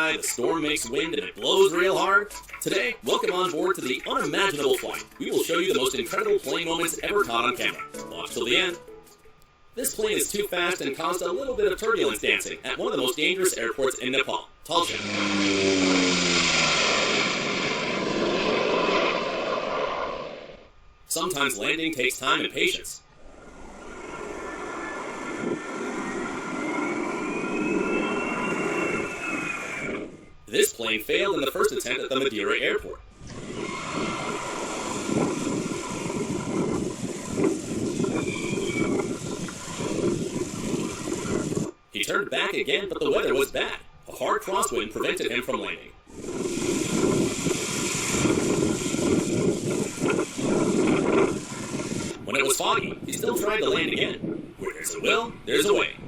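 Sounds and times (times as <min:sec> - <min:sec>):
jet airliner engines: 0:09.8 - 0:30.8, 0:32.8 - 0:41.9, 0:46.0 - 0:56.0
steady loud rushing noise: 0:14.7 - 0:30.7, 0:32.7 - 0:41.9, 0:46.0 - 0:56.0
aircraft engine tone: 0:14.9 - 0:18.9, 0:23.1 - 0:30.4, 0:33.3 - 0:41.8
gusty wind on microphone: 0:14.9 - 0:20.7, 0:23.1 - 0:30.5, 0:33.0 - 0:41.9, 0:46.0 - 0:56.0.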